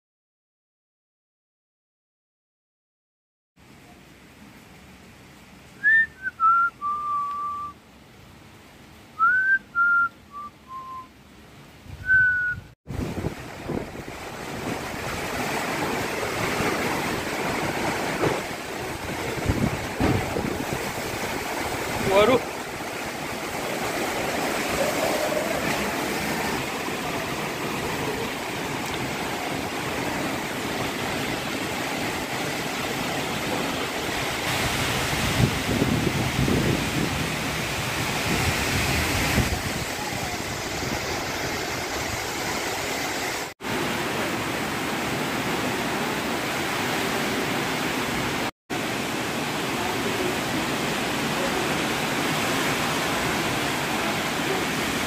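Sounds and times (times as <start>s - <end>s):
strong storm wind blowing: 11.8s - 44.0s.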